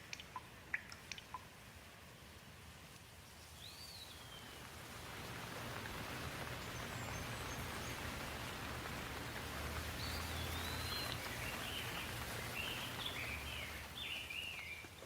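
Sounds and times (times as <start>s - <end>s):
rain hiss: 0.0s - 15.0s
bird whistled call: 10.0s - 14.9s.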